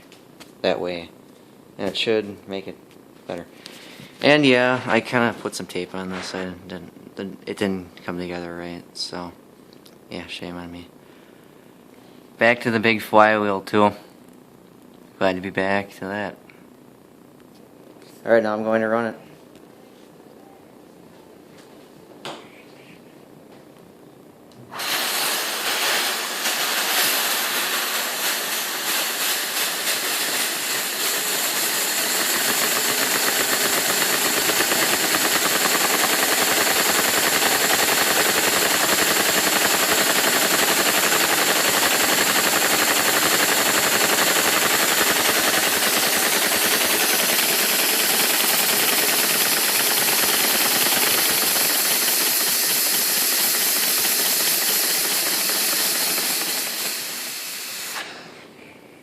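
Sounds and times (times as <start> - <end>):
vacuum cleaner suction hissing: 24.7 - 58.5.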